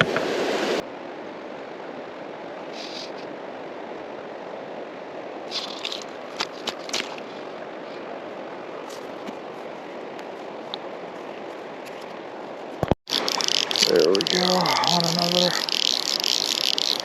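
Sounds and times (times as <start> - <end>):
creek water flowing: 0.0 - 17.0
short scrapes and clicks: 5.5 - 7.2.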